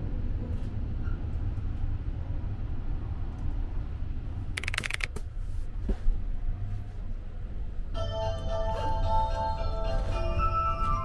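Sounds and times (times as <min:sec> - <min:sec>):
train rumbling inside carriage: 0:00.0 - 0:11.0
clicking and rattling: 0:04.6 - 0:05.2.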